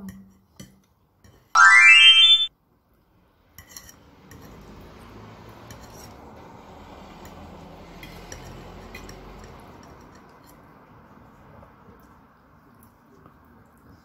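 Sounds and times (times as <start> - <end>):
rising electronic tone: 1.6 - 2.5.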